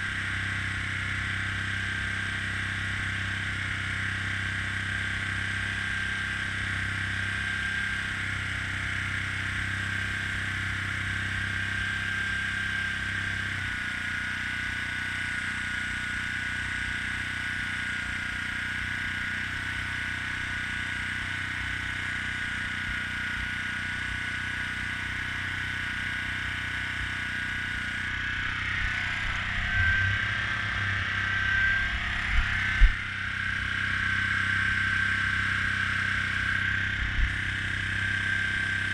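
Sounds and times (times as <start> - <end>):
air compressor humming: 26.2 - 38.9.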